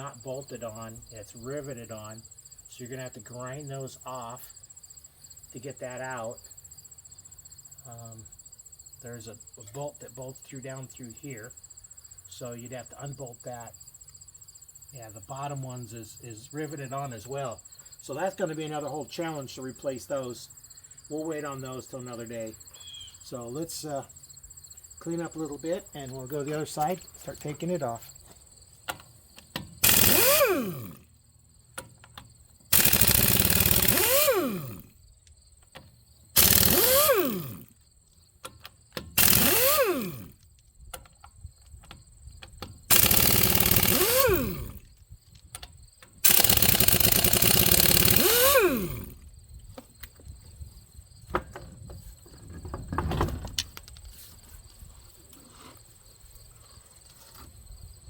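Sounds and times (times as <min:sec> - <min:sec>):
power tool motor whining: 0:29.8 - 0:31.0, 0:32.7 - 0:35.0, 0:36.4 - 0:37.8, 0:39.1 - 0:40.4, 0:42.9 - 0:44.9, 0:46.2 - 0:49.2.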